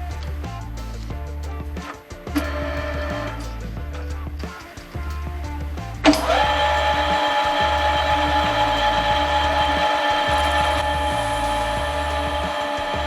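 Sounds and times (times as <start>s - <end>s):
background music with bass line: 0.0s - 13.0s.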